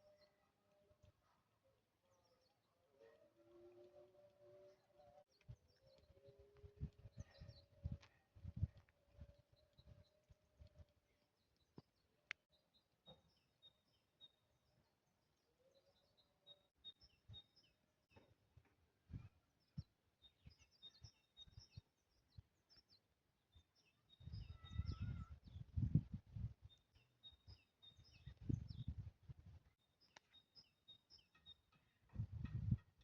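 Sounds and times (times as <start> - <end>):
high bird chirps: 23.9 - 25.4.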